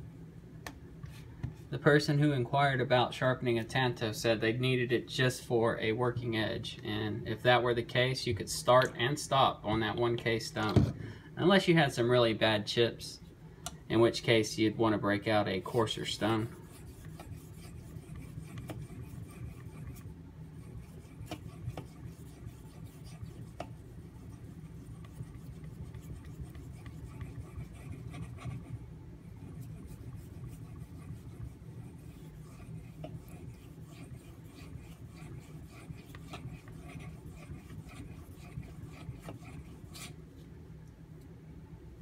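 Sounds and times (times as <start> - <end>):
blade scraping on whetstone: 29.6 - 40.2.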